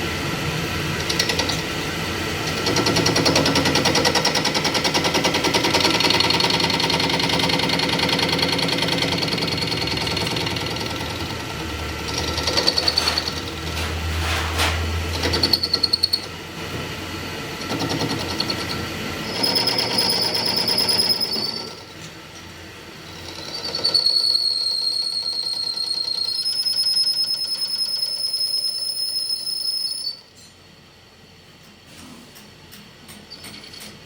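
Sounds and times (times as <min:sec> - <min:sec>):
metal machining squeal and chatter: 0:11.8 - 0:16.4, 0:18.0 - 0:22.1, 0:23.0 - 0:30.6, 0:33.1 - 0:34.0.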